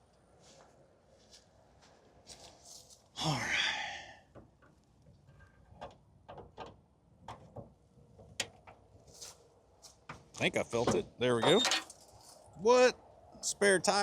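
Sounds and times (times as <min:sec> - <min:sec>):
person sighing words: 0:03.2 - 0:04.2.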